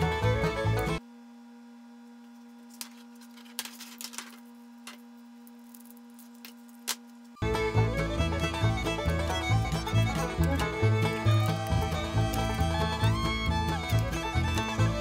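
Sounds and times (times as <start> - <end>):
background music: 0.0 - 1.0, 7.4 - 15.0.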